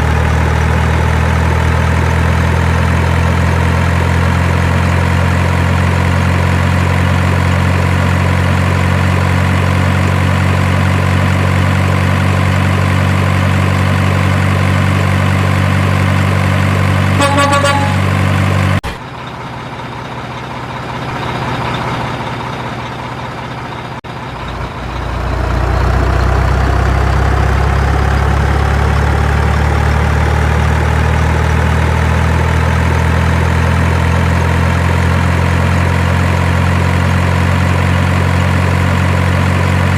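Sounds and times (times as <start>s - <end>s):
deep engine rumble rising in pitch: 0.0s - 18.8s, 24.1s - 39.9s
heavy truck engine running: 0.0s - 39.9s
pulsing truck horn: 17.0s - 18.9s.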